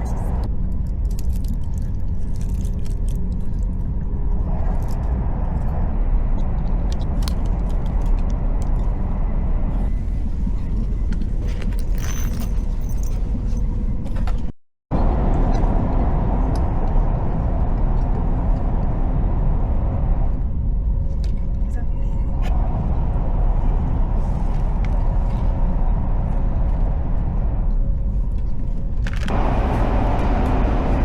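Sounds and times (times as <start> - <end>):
vehicle rumble from inside: 0.0 - 31.0.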